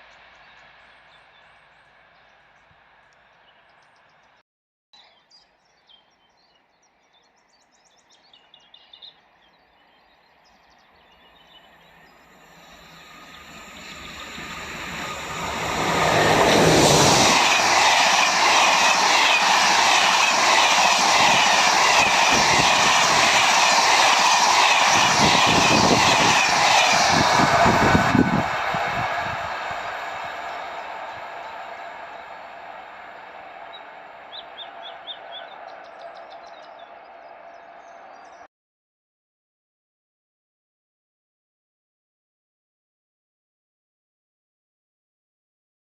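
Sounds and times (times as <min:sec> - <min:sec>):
passenger train passing: 0:00.0 - 0:03.6, 0:10.9 - 0:38.5.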